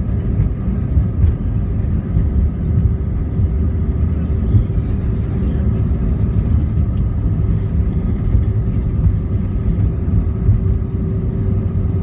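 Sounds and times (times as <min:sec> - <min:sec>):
airliner cabin rumble: 0:00.0 - 0:12.0
faint engine hum: 0:00.0 - 0:12.0.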